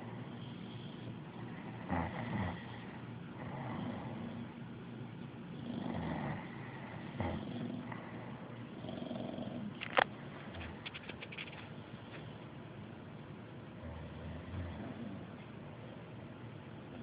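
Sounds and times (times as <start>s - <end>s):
dog snoring: 0.0s - 4.7s, 5.4s - 10.9s, 13.8s - 15.5s.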